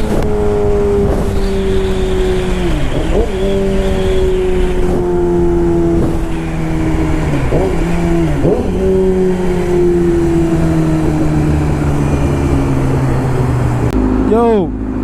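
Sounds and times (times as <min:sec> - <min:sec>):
low wind rumble: 0:00.0 - 0:15.0
motorcycle engine running: 0:00.0 - 0:15.0.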